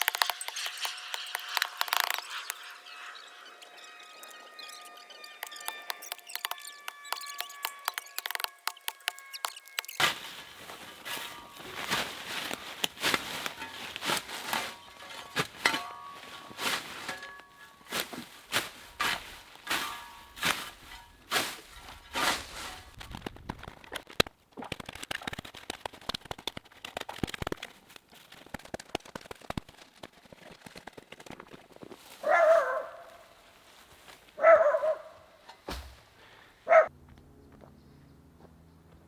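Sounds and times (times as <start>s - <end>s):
crackling patter: 0.0s - 32.7s
dog barking: 32.2s - 33.1s, 34.4s - 35.2s, 36.7s - 36.9s.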